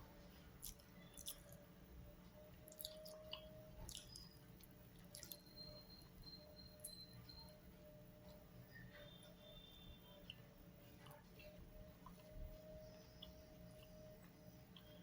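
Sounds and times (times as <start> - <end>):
low steady hum: 0.0 - 15.0
soft wet clicks and squelches: 0.3 - 1.7, 2.3 - 7.0, 9.2 - 15.0
chewing: 0.6 - 1.7, 2.4 - 5.8, 10.2 - 15.0.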